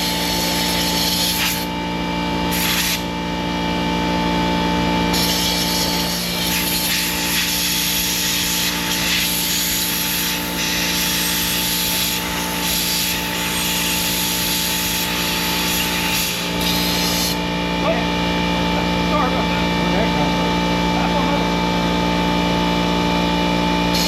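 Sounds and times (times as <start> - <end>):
small gas engine running: 0.0 - 22.2
pressure washer hiss: 2.5 - 3.0, 5.2 - 17.4.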